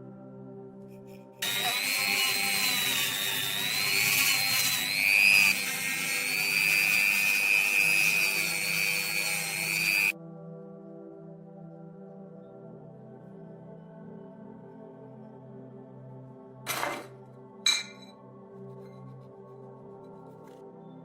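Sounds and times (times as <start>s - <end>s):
background music: 0.0s - 21.0s
high-pitched power tool whine: 1.4s - 10.2s.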